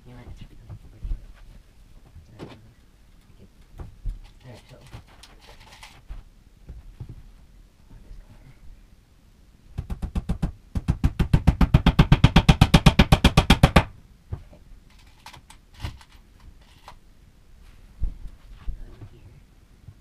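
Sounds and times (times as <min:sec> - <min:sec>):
hammer driving nails: 0:09.8 - 0:13.9.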